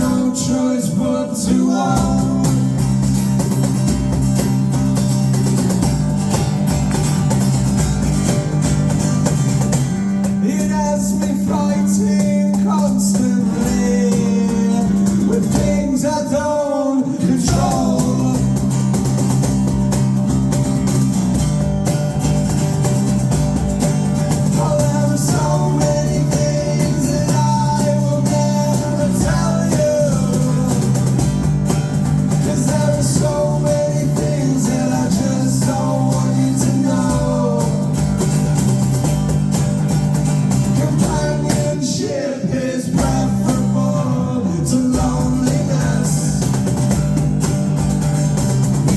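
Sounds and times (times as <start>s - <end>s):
live rock band playing: 2.0s - 16.0s, 17.5s - 41.8s, 44.9s - 48.9s
person singing: 24.6s - 31.2s.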